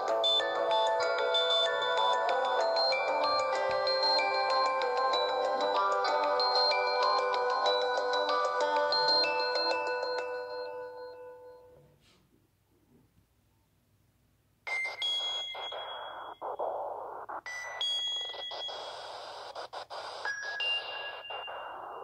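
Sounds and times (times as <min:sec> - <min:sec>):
chiming electronic melody: 0:00.0 - 0:11.8, 0:20.2 - 0:22.0
hiss with electronic pings: 0:14.7 - 0:22.0.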